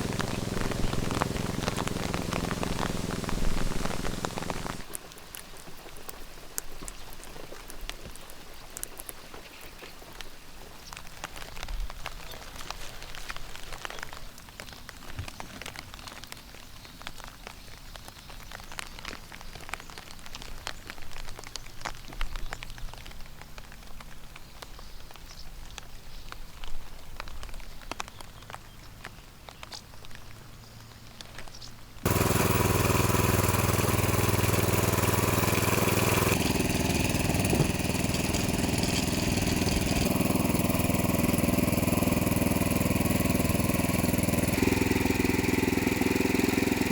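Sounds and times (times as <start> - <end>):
tractor engine running: 0.0 - 4.9, 32.0 - 46.9
raindrops pattering: 0.0 - 46.9.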